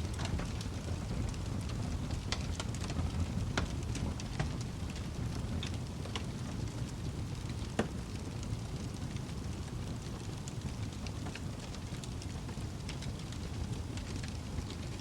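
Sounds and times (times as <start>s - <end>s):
fire crackling and popping: 0.0s - 15.0s
fire flames rumbling: 0.0s - 15.0s.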